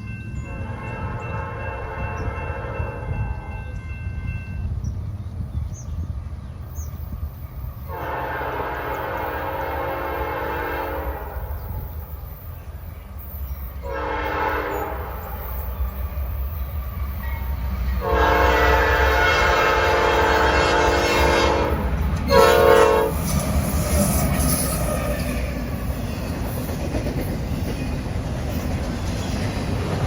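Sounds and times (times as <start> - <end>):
train rumble: 0.0 - 30.0
locomotive air horn blasts: 0.5 - 4.2, 7.9 - 11.8, 13.8 - 15.7, 17.3 - 23.2.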